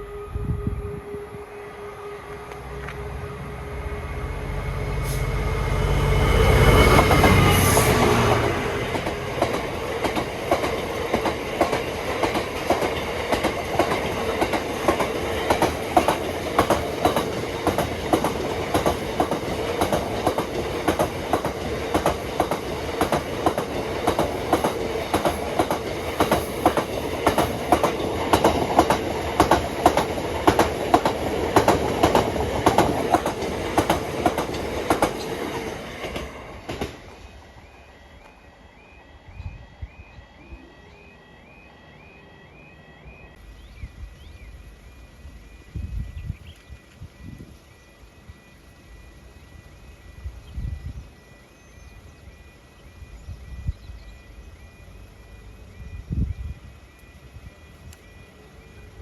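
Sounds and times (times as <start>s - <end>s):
locomotive engine: 0.0s - 45.8s
train wheels clicking over rail joints: 6.6s - 37.4s.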